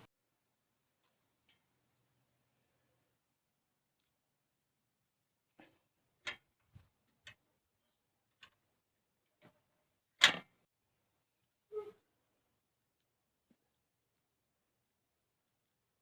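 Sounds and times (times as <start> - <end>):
short irregular clicks and knocks: 8.3 - 8.7.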